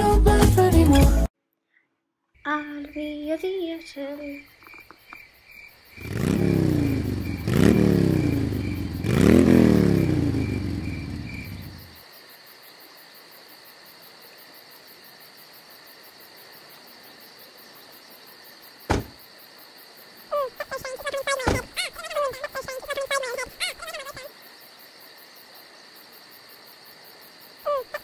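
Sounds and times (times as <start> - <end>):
engine revving: 6.0 - 11.9
short knock: 18.9 - 19.2.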